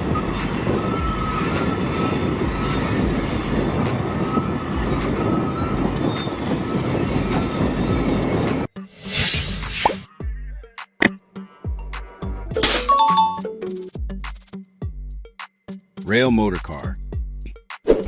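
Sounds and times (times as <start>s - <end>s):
faint wheel squeal: 0.0s - 8.6s
train wheels rumbling on rails: 0.0s - 8.7s.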